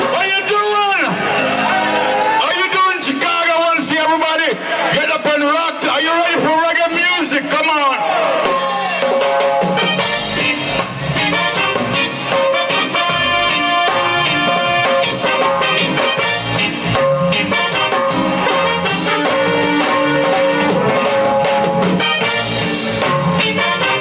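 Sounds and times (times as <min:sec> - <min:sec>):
reggae band instrumental: 0:00.0 - 0:06.6, 0:07.3 - 0:24.0
horns: 0:08.0 - 0:24.0.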